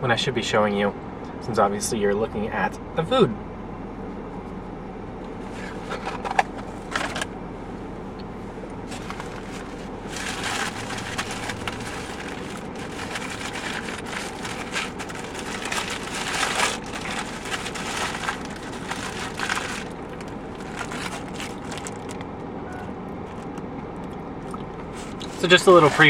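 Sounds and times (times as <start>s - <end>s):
low steady hum: 0.0s - 26.0s
paper wrapping crinkling: 5.4s - 7.3s, 8.8s - 22.3s, 23.2s - 23.6s, 24.8s - 26.0s.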